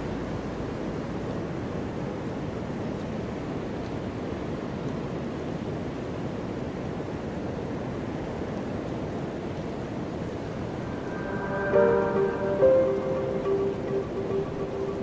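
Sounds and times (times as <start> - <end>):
ocean surf roaring: 9.2 - 15.0.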